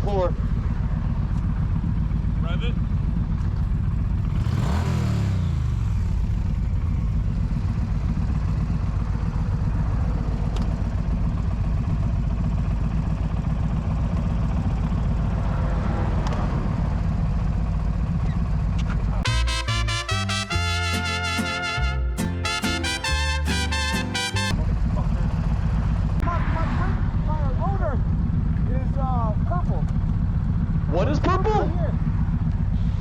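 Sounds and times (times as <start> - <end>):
motorcycle engine running: 0.0 - 15.9, 16.7 - 19.7, 24.5 - 26.2, 27.2 - 33.0
brassy swing music: 19.2 - 24.6.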